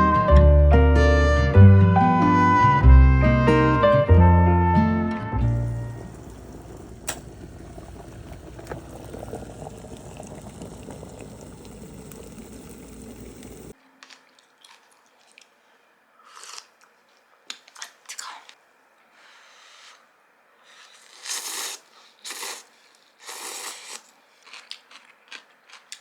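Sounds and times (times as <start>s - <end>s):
hissing crackling noise: 5.4s - 13.8s.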